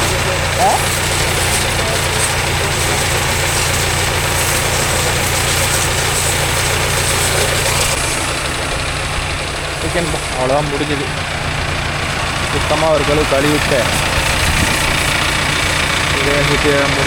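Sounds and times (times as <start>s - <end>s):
water spray hissing: 0.0s - 11.3s, 12.0s - 16.1s
engine running: 0.0s - 17.0s.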